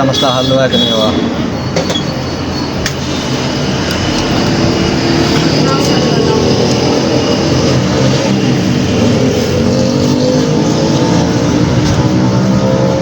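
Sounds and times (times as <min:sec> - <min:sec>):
vehicle engine running: 0:03.1 - 0:13.0.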